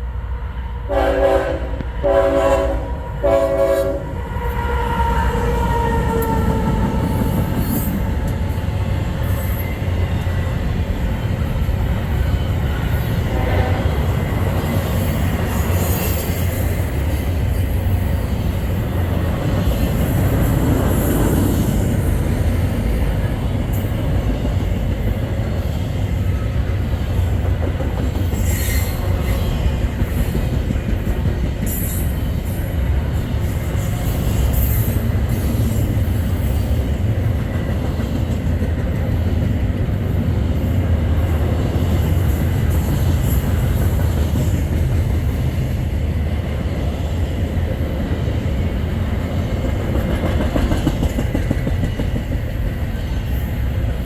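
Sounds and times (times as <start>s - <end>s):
freight train rumbling past: 0.0s - 54.0s
train wheel squeals: 4.4s - 13.3s, 13.9s - 23.1s, 27.8s - 36.9s.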